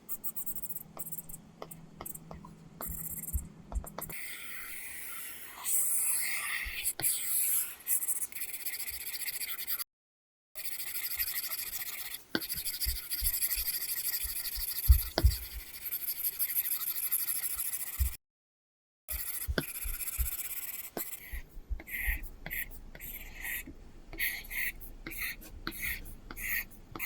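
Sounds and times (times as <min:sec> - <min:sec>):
stylus scratching on screen: 0:00.0 - 0:09.8, 0:10.6 - 0:18.2, 0:19.1 - 0:27.0
stylus nib tapping: 0:00.2 - 0:04.1, 0:12.3 - 0:15.9, 0:19.1 - 0:24.3.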